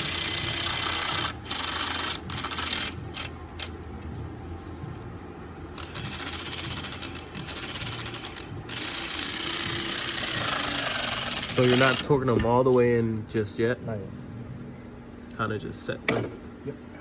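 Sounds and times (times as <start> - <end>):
ratchet clicking: 0.0 - 3.7, 5.8 - 12.1.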